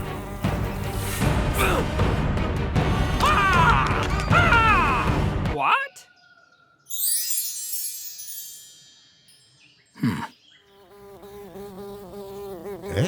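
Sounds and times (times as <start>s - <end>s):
sparkling chime shimmer: 6.9s - 9.8s.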